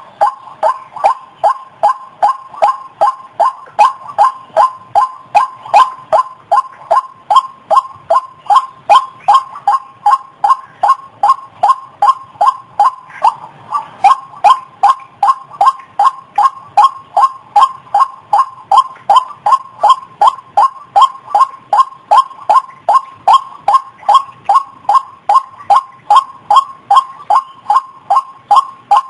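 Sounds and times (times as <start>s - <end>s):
waterhen calling: 0.0s - 29.0s.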